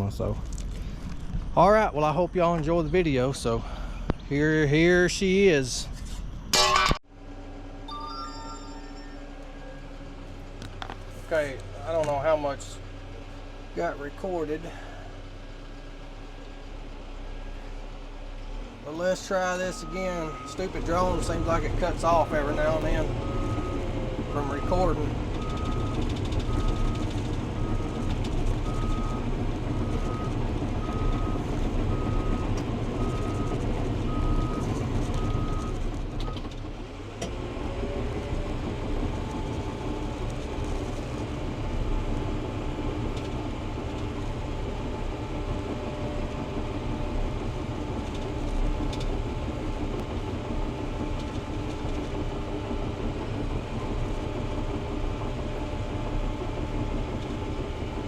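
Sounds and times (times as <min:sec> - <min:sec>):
diesel bulldozer engine: 0:00.0 - 0:58.0
reverse alarm beeping: 0:07.8 - 0:10.0, 0:19.6 - 0:22.2.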